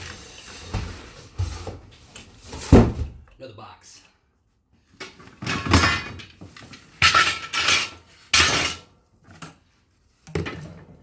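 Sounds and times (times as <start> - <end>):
metal parts clattering: 5.0 - 8.9.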